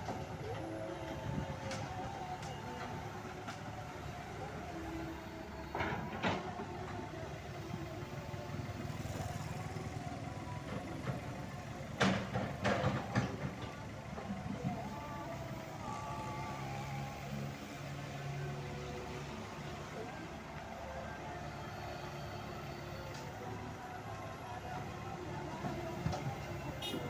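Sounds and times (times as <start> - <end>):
excavator diesel engine running: 0.0 - 27.0
excavator bucket clanking and scraping: 5.6 - 6.9, 10.7 - 14.8.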